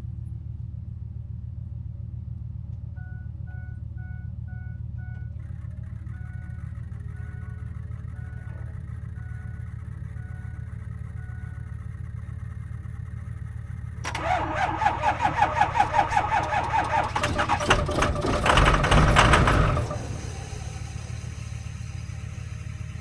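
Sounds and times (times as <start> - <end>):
engine starter cranking: 14.1 - 22.4
low hum: 14.1 - 23.0.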